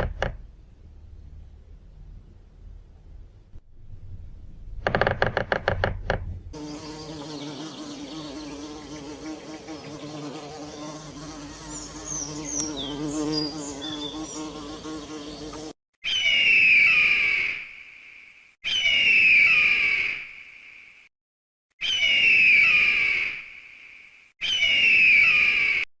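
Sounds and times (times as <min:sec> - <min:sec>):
flying insect buzzing: 0:06.6 - 0:15.8.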